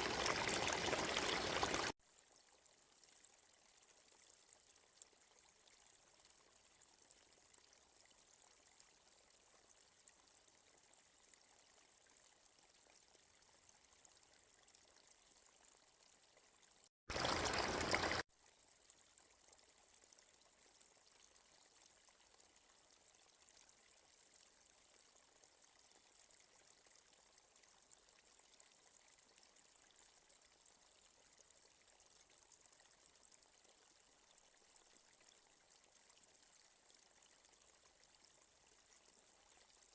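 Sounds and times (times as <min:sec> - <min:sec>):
stream flowing: 0:00.0 - 0:01.9, 0:17.1 - 0:18.2.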